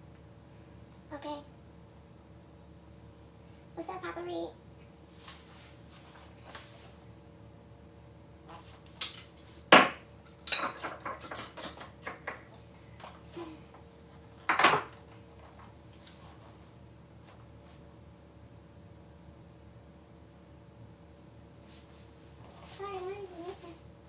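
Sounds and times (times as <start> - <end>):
utensils clinking: 10.4 - 12.0.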